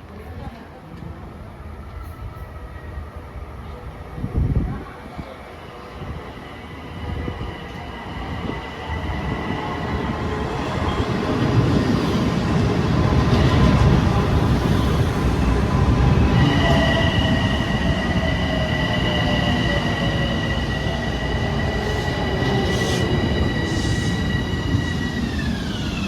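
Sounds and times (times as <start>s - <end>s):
train wheels rumbling on rails: 6.0s - 26.0s.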